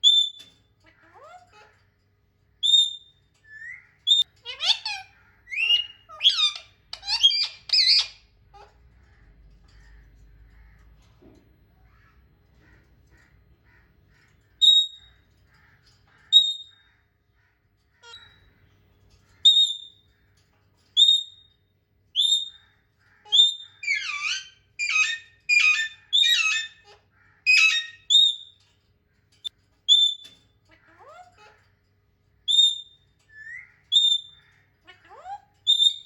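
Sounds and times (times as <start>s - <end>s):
harsh parrot calls: 3.5s - 10.8s, 22.2s - 28.5s.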